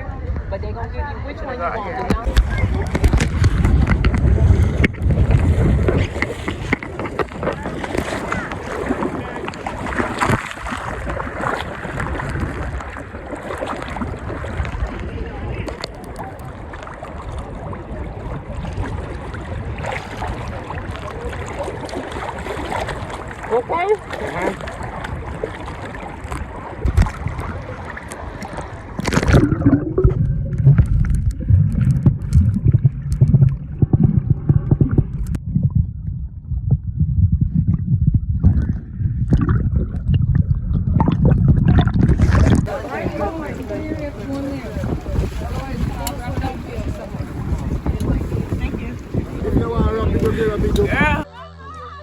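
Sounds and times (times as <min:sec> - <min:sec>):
faint voices: 0:00.0 - 0:12.0, 0:14.6 - 0:30.2, 0:42.6 - 0:52.0
boat rushing on sea: 0:00.0 - 0:32.7, 0:42.0 - 0:52.0
wind on microphone: 0:00.0 - 0:51.3
water noise: 0:00.0 - 0:52.0.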